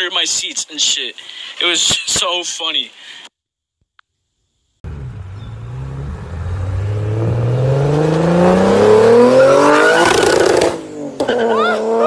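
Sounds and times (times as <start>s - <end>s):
car engine accelerating hard: 4.8s - 12.0s.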